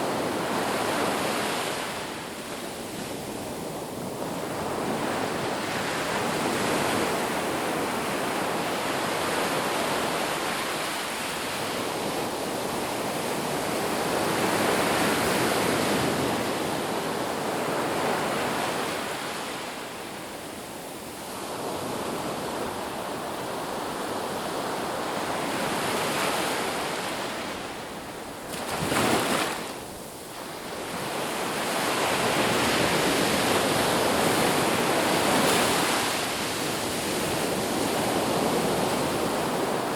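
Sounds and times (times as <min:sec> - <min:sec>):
ocean surf breaking: 0:24.6 - 0:39.9.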